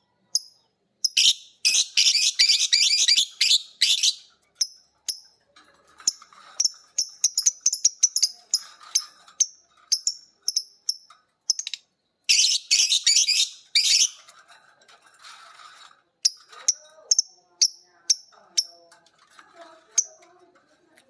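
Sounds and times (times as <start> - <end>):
birds chirping: 0.0 - 14.4
harsh rapid bird chatter: 0.3 - 21.0.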